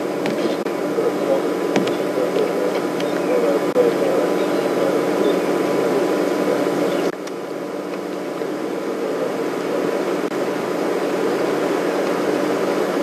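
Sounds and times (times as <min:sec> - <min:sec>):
steady hum and hiss: 0:00.0 - 0:13.0
faint bird chirps: 0:02.9 - 0:03.6, 0:04.3 - 0:05.6.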